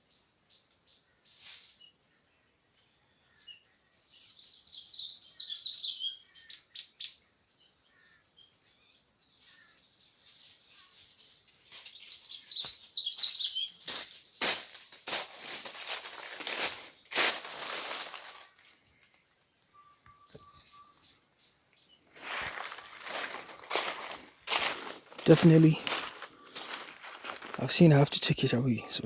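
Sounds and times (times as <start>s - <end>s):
birds chirping: 4.2s - 8.9s, 12.0s - 14.0s, 15.9s - 29.0s
insects shrilling: 11.6s - 19.5s, 22.1s - 29.0s.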